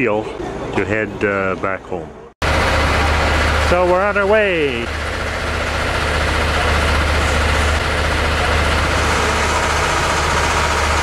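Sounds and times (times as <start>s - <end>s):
train engine rumble: 2.4s - 11.0s.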